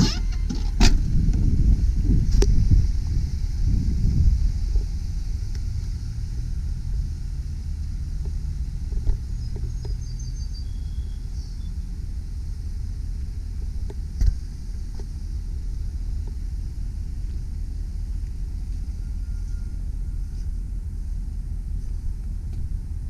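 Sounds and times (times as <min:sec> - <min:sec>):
truck engine idling: 0:00.0 - 0:23.0
faint high chirps: 0:18.7 - 0:20.5.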